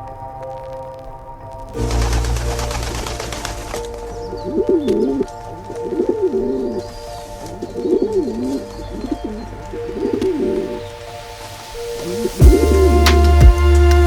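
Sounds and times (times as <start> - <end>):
background music steady notes: 0.0 - 14.0
pigeon cooing: 1.9 - 11.1.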